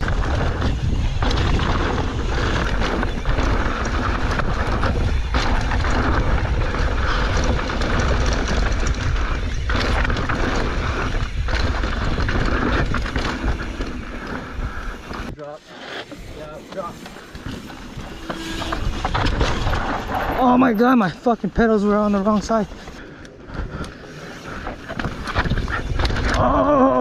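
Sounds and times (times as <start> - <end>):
bike rattling and knocking: 0.0 - 15.3, 16.2 - 27.0
wind buffeting microphone: 0.0 - 15.3, 22.9 - 27.0
bike tyres rolling on rocky dirt: 0.0 - 27.0.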